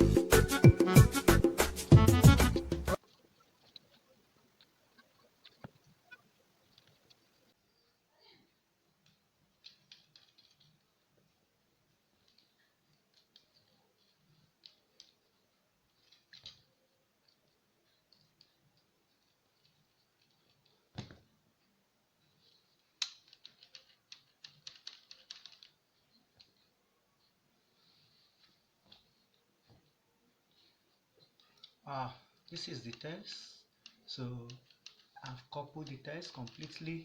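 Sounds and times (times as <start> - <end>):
small parts clicking and tapping: 8.9 - 27.4, 28.3 - 37.0.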